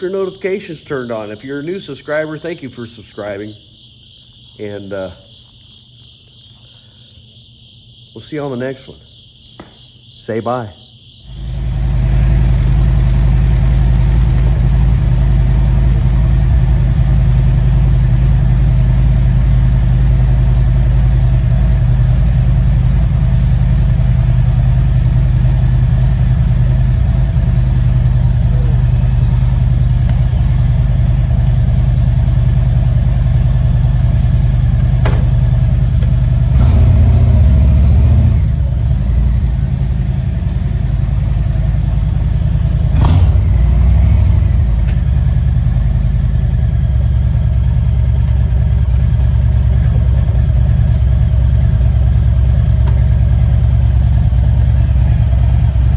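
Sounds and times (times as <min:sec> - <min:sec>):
motorcycle engine starting and idling: 0:11.3 - 0:55.9.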